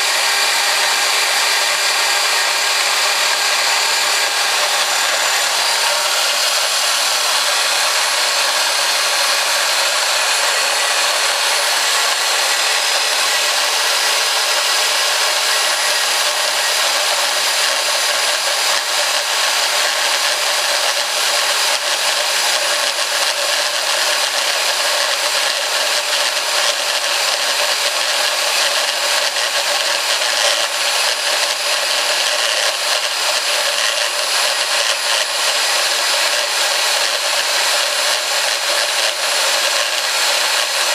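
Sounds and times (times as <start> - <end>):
band saw cutting metal pipe: 0.0 - 40.9.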